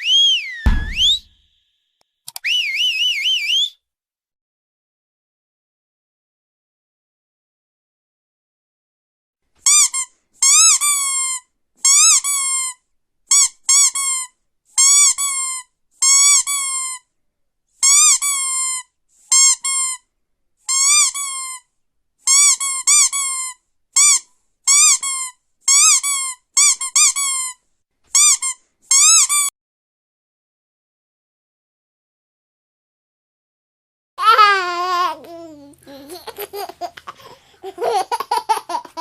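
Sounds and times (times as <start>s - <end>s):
squeaky dog toy squeaks: 9.6s - 12.7s, 13.3s - 17.0s, 17.8s - 20.0s, 20.7s - 21.6s, 22.3s - 29.5s.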